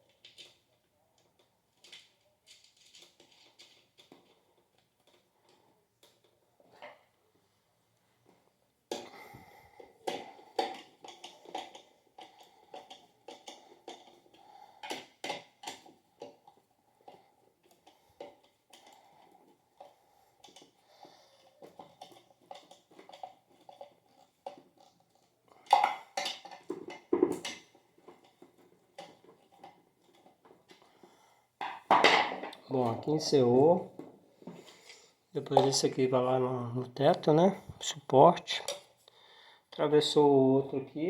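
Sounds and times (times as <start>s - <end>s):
metal parts clicking and knocking: 1.3s - 4.4s.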